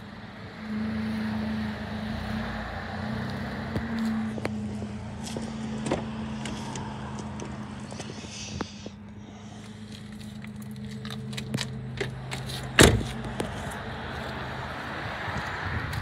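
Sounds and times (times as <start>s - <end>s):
car engine idling: 0.0s - 16.0s
car door slamming: 12.7s - 13.2s.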